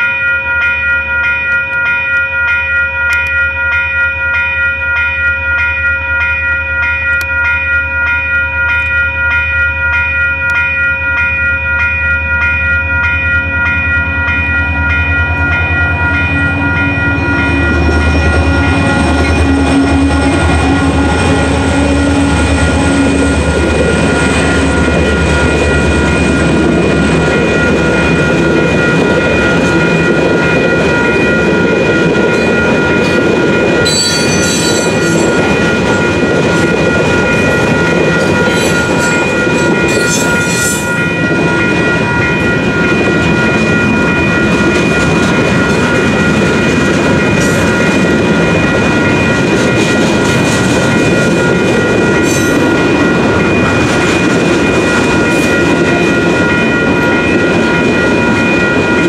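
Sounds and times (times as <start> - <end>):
crossing bells ringing: 0.0 - 59.0
freight train wheels clacking: 6.4 - 59.0
high-pitched wheel squeals: 33.9 - 35.3.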